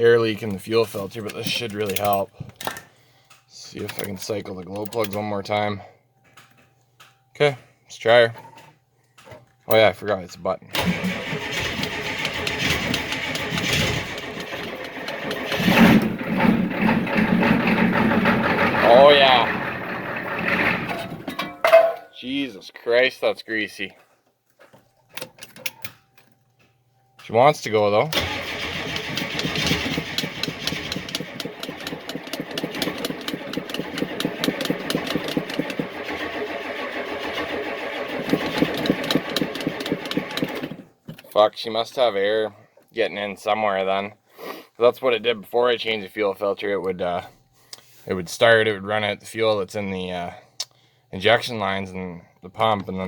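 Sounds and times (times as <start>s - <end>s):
diesel engine cranking and starting: 10.8s - 21.5s, 28.1s - 41.0s.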